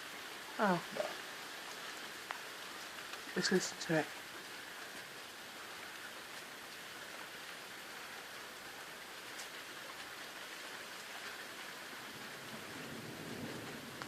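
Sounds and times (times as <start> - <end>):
steady rain hiss: 0.0 - 14.0
single raindrops ticking: 1.6 - 5.2.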